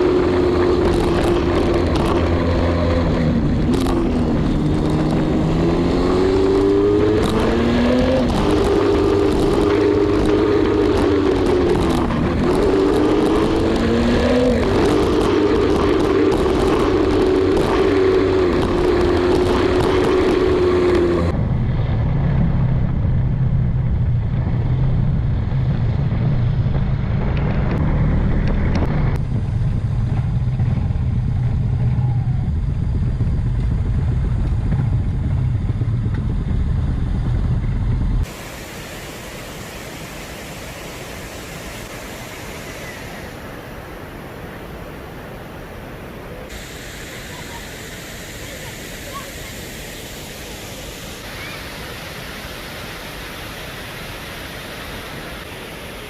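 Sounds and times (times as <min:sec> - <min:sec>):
motorcycle engine running: 0:00.0 - 0:38.4
wind and road noise: 0:00.0 - 0:56.0
even rushing hiss: 0:38.2 - 0:56.0.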